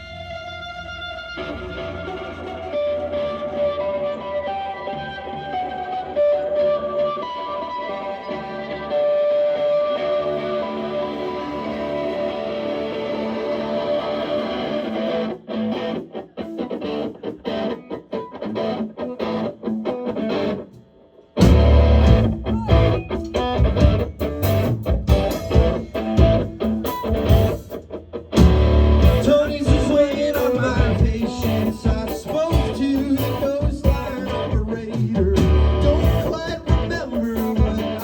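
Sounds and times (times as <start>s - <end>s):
electric guitar choppy chords: 0.0s - 38.0s
rock band playing: 0.0s - 38.0s
person singing: 22.4s - 23.0s, 29.0s - 38.0s.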